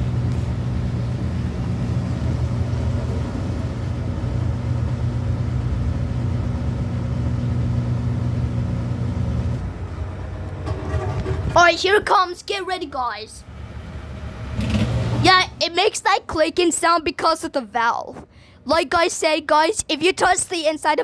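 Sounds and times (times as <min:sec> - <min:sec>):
washer drain pump humming: 0:00.0 - 0:15.9.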